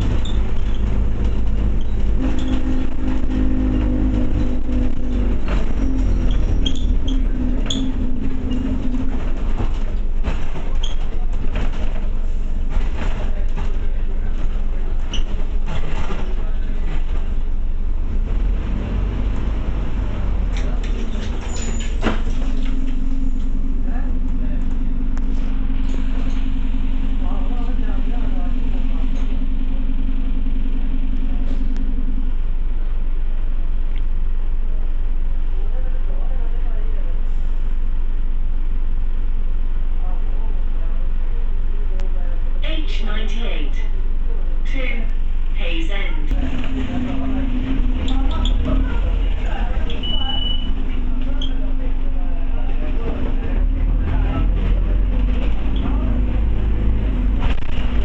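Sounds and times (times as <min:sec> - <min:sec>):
short squeaks: 0:00.0 - 0:03.1, 0:06.0 - 0:08.8, 0:10.7 - 0:11.2, 0:21.0 - 0:22.3, 0:49.8 - 0:51.7
bus body rattling: 0:00.0 - 0:34.8, 0:42.6 - 0:58.0
diesel bus engine: 0:00.0 - 0:58.0
road rumble: 0:00.0 - 0:58.0.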